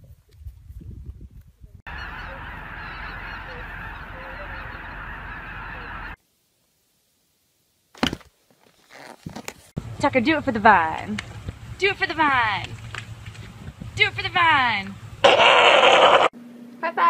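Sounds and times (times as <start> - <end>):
geese honking: 1.9 - 6.2, 15.2 - 16.3.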